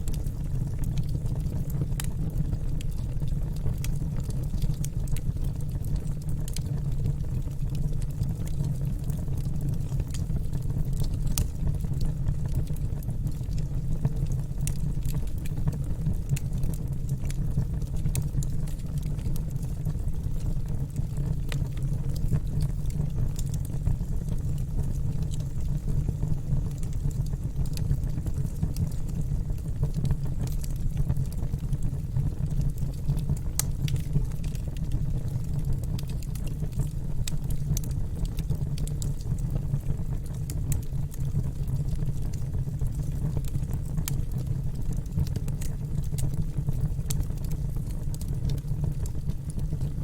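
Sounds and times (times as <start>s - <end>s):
fire crackling and popping: 0.0s - 50.0s
fire flames rumbling: 0.0s - 50.0s.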